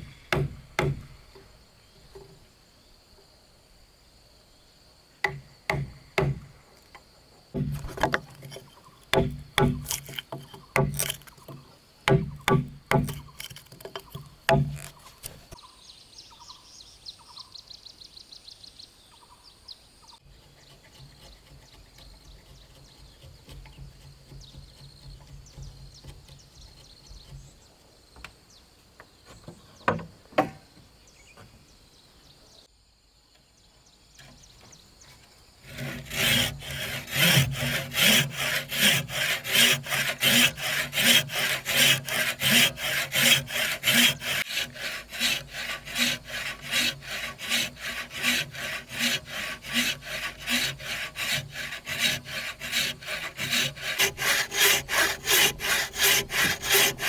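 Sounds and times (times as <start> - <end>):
wood knocking: 0.0 - 2.4, 7.6 - 15.6, 29.0 - 31.5, 35.7 - 57.0
handsaw cutting wood: 7.6 - 15.6, 20.3 - 27.6, 35.6 - 57.0.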